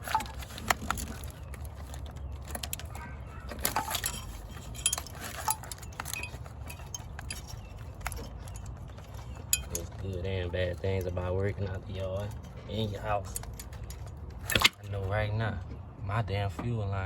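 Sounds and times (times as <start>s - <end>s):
clicks of small parts handled: 0.0s - 10.1s, 12.3s - 14.9s
low steady hum: 0.0s - 17.0s.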